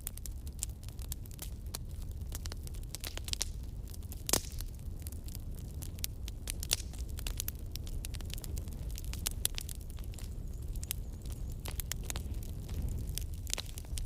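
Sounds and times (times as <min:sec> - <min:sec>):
low rumble of flames: 0:00.0 - 0:14.0
wood crackling and popping: 0:00.0 - 0:14.0.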